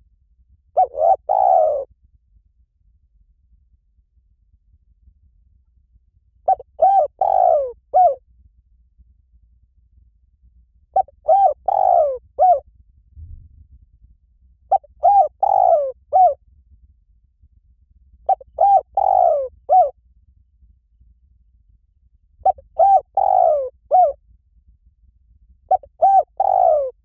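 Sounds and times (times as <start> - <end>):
dove cooing: 0.8 - 1.9, 6.5 - 8.2, 11.0 - 12.6, 14.7 - 16.4, 18.3 - 19.9, 22.4 - 24.2, 25.7 - 27.0.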